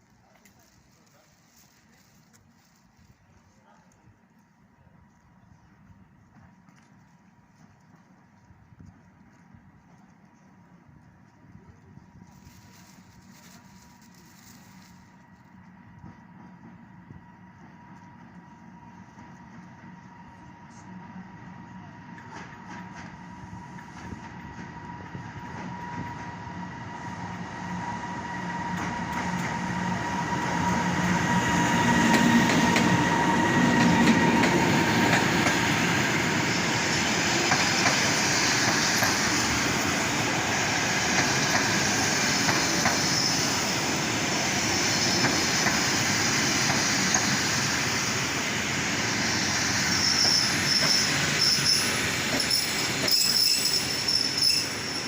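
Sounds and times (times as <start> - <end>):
train carriages rolling on rails: 12.1 - 55.0
high wheel squeal: 43.0 - 43.5, 49.3 - 55.0.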